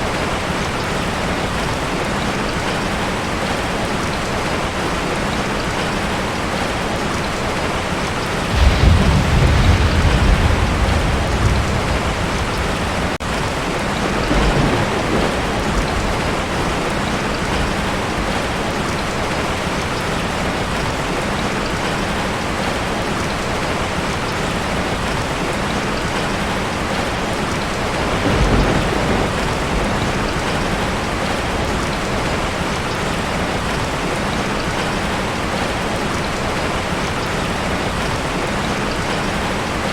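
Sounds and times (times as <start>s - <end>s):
heavy rain on a tin roof: 0.0s - 39.9s
thunder rumbling: 8.3s - 19.8s, 26.7s - 34.1s.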